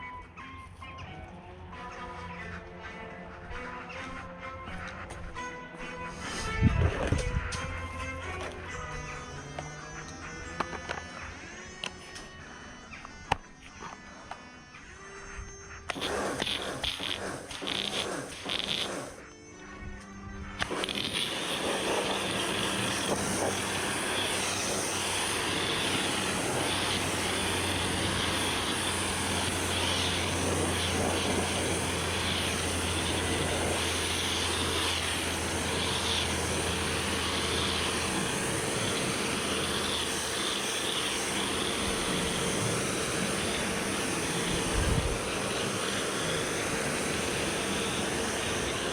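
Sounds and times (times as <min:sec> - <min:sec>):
pressure washer motor hum: 0:15.8 - 0:19.3, 0:20.5 - 0:48.9
hiss of water spray: 0:15.9 - 0:19.2, 0:20.6 - 0:48.9.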